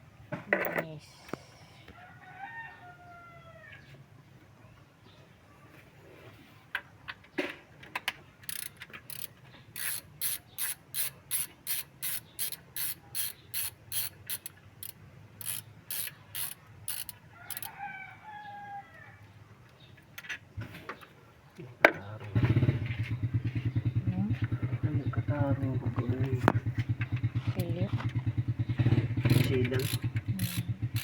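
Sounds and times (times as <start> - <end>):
ratchet wrench clicking: 8.4 - 17.8, 28.7 - 31.0.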